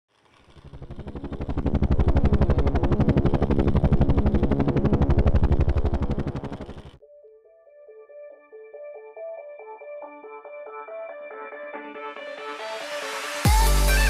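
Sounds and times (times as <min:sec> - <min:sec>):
helicopter rotor chopping: 0:00.1 - 0:07.0.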